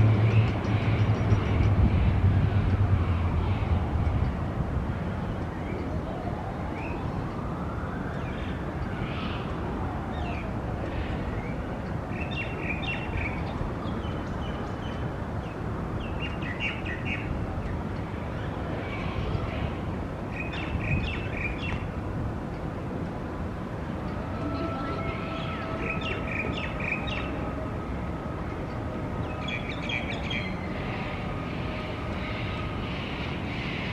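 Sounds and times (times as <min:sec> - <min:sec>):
vehicle passing: 0:00.0 - 0:05.3
low rumble of city traffic: 0:00.0 - 0:33.9
birds chirping: 0:08.1 - 0:22.0, 0:24.4 - 0:27.5, 0:28.7 - 0:33.9.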